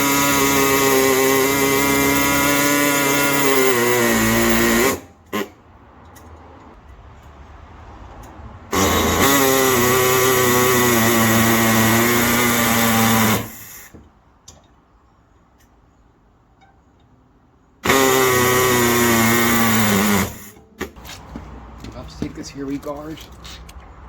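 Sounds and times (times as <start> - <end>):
pneumatic air hacksaw cutting pipe: 0.0 - 5.6, 8.7 - 14.0, 17.8 - 21.0.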